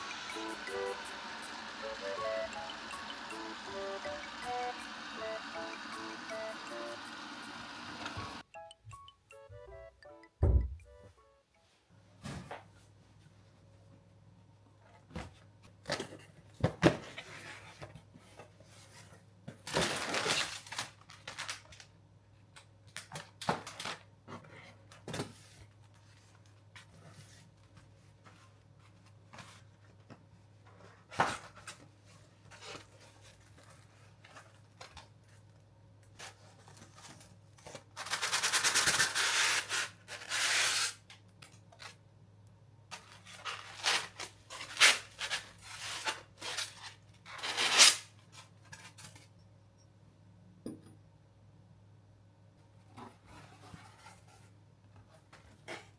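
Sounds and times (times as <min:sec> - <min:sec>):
packaging tearing: 0:38.0 - 0:42.0.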